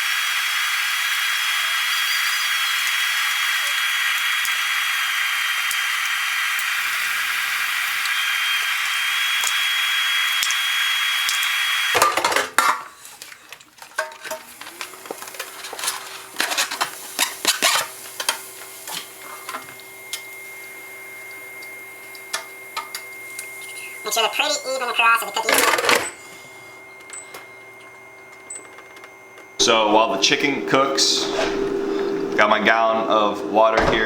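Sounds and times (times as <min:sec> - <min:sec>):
utensils and dishes clicking: 0:12.0 - 0:20.3
low appliance hum: 0:12.0 - 0:34.0.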